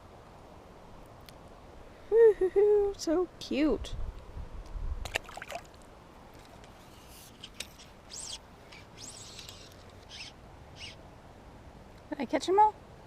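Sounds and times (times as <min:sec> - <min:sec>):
faint high bird chirps: 0:08.1 - 0:11.0.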